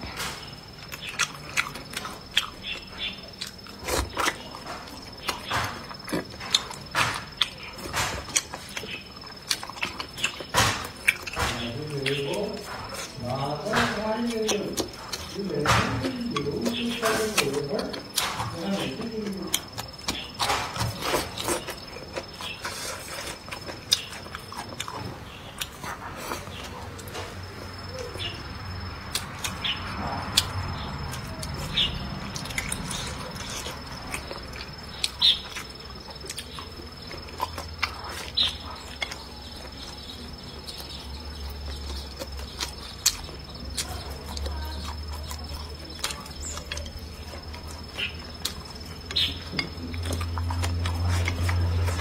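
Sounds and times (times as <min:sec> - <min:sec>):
chewing and lip-smacking: 0:00.0 - 0:52.0.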